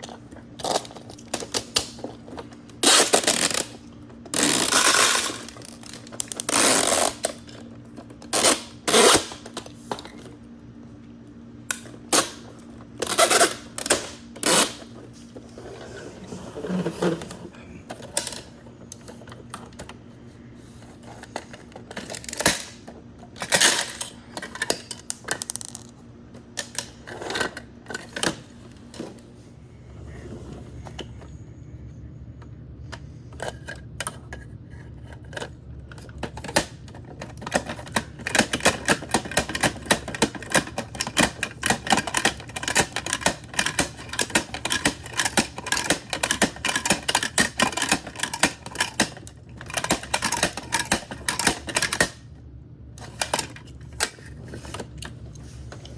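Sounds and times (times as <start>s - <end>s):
plastic toy parts clicking: 35.3s - 52.2s.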